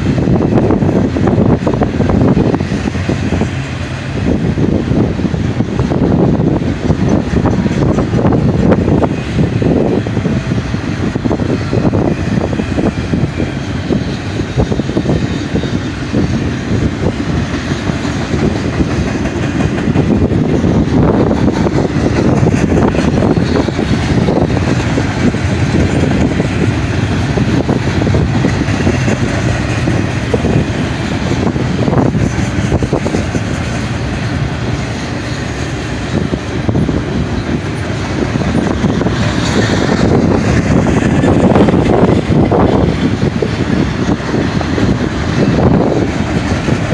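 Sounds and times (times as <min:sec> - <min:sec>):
freight train rolling past: 0:00.0 - 0:46.9
wheels clickety-clack on rail: 0:00.0 - 0:46.9.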